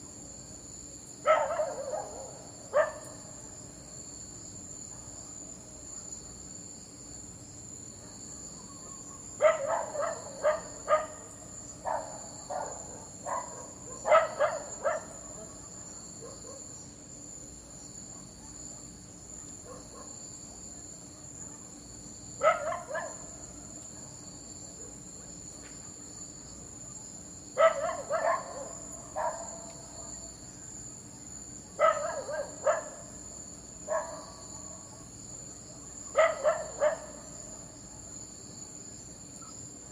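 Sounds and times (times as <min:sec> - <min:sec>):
crickets chirring: 0:00.0 - 0:39.9
dog barking: 0:01.2 - 0:03.2, 0:08.0 - 0:16.8, 0:18.1 - 0:20.2, 0:22.4 - 0:24.2, 0:27.6 - 0:30.3, 0:31.8 - 0:33.2, 0:33.9 - 0:35.1, 0:36.1 - 0:37.3.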